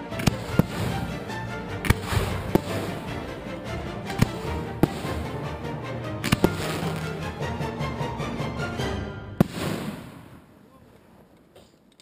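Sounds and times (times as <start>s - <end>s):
firework shells bursting: 0.0s - 7.6s, 9.4s - 10.5s
music with held tones: 0.0s - 9.5s.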